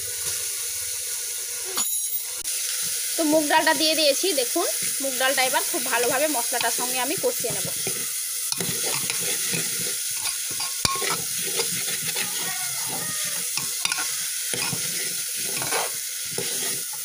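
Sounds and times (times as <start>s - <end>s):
lentils sizzling in oil: 0.0s - 17.0s
metal spatula scraping pot: 4.7s - 17.0s.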